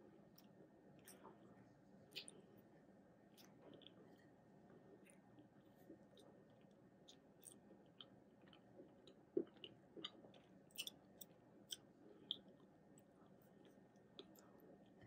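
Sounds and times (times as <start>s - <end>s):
chewing mouth clicks: 2.1s - 2.4s, 6.0s - 12.6s.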